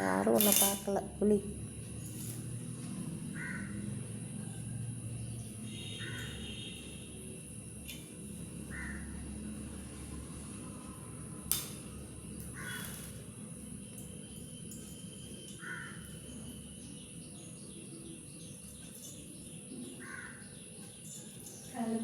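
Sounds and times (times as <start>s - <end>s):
bird calling: 15.5s - 16.4s, 19.7s - 21.3s.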